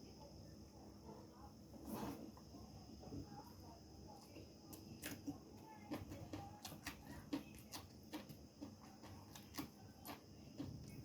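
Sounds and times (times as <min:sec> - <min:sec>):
chewing crunches: 0:04.7 - 0:11.0.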